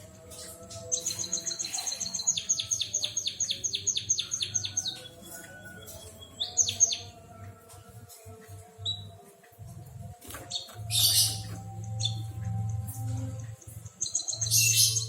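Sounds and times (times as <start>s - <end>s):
bird singing trills and whistles: 0.4s - 7.1s, 10.5s - 13.2s, 13.8s - 15.0s.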